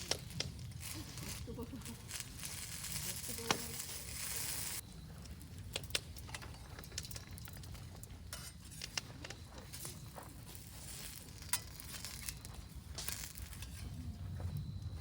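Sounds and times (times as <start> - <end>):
hiss: 2.1 - 4.8
utensils clinking against pan: 5.9 - 14.0.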